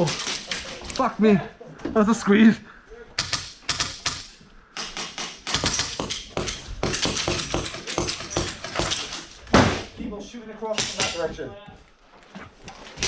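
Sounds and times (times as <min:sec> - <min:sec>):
airsoft guns firing: 0:03.2 - 0:09.9.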